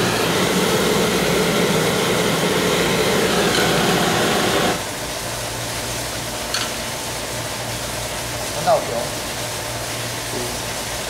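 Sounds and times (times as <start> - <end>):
machine running: 0.0 - 4.9.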